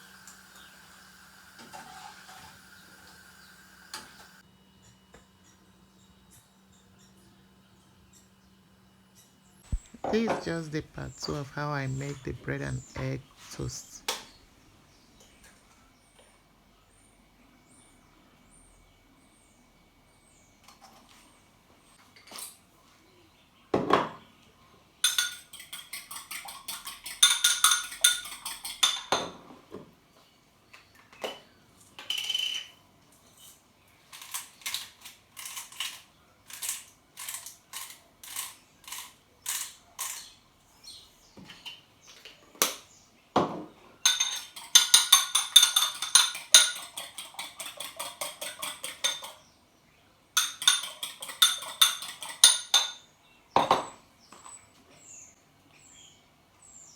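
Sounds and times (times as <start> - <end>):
cutlery clinking against a dish: 25.0 - 29.5, 44.1 - 49.5, 50.4 - 53.1.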